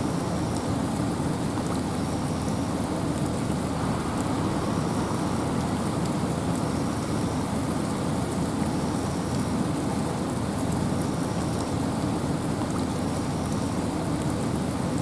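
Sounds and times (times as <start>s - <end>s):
faint water drips: 0.0s - 15.0s
rain falling in a forest: 0.0s - 15.0s
rush of wind: 2.6s - 9.0s.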